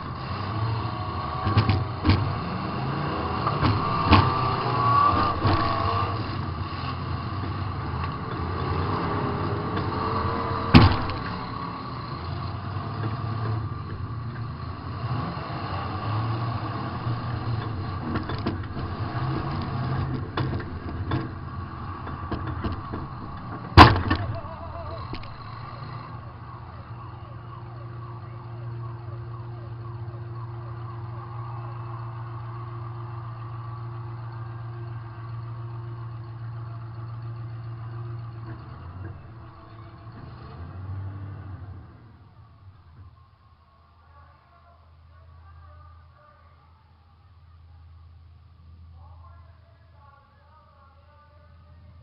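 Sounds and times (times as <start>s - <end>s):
car engine running: 0.0s - 44.2s
metal-on-metal crash impacts: 22.1s - 24.5s.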